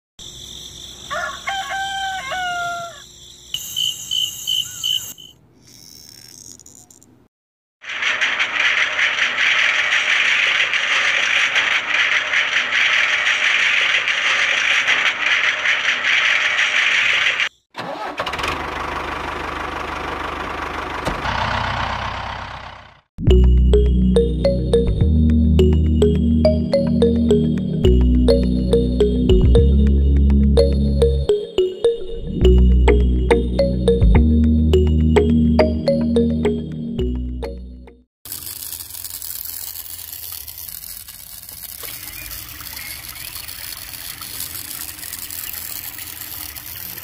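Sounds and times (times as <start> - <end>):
rooster crowing: 1.0 - 3.2.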